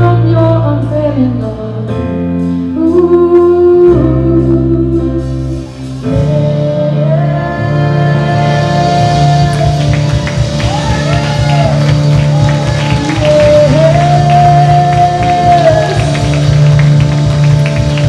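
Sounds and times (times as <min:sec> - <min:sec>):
guitar: 0:00.0 - 0:18.0
worship band playing chords: 0:00.0 - 0:18.0
person singing: 0:06.0 - 0:12.0, 0:12.6 - 0:17.0.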